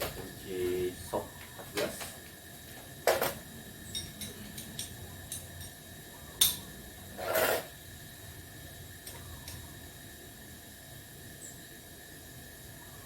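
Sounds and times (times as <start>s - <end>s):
metal tool scraping: 7.2s - 7.7s.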